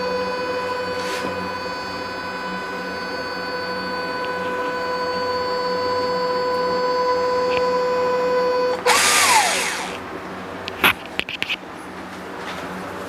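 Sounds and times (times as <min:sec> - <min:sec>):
small electric motor whining: 0:00.0 - 0:10.0.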